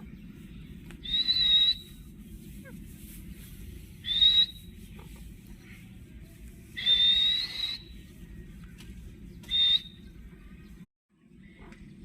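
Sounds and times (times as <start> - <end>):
parrot whistling: 1.0 - 2.0, 4.0 - 4.6, 6.8 - 7.9, 9.5 - 10.0.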